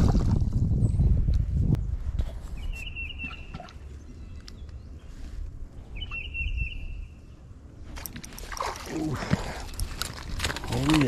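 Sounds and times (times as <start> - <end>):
low wind rumble on microphone: 0.0 - 8.0
songbird calling: 2.6 - 7.5.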